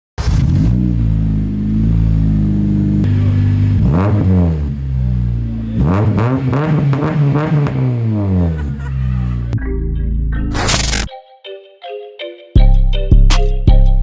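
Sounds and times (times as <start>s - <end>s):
car engine idling and revving: 0.2s - 11.0s.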